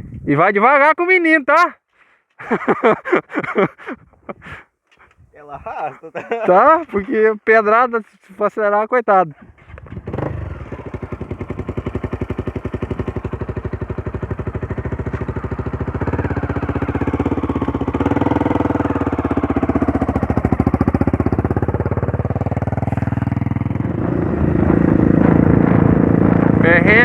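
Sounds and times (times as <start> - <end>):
motorcycle engine running: 9.6 - 27.0.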